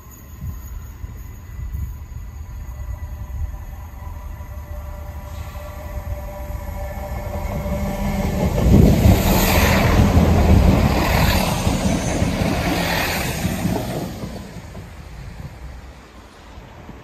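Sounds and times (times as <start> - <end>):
passenger train passing at speed: 0.0 - 17.0.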